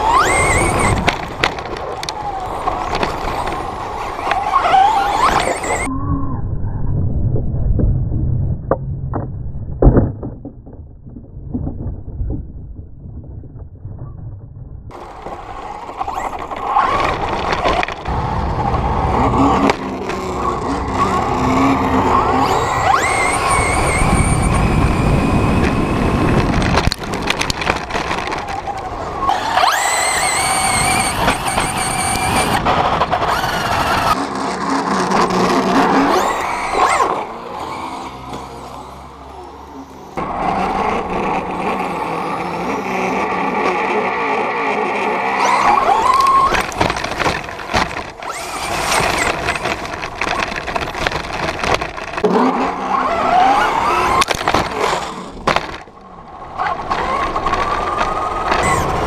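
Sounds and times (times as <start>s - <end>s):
electric motor whine: 0.0s - 5.9s, 14.9s - 55.8s, 56.5s - 59.0s
low rumble and clicks: 0.0s - 59.0s
rattling and scraping: 9.2s - 38.8s, 45.2s - 56.0s.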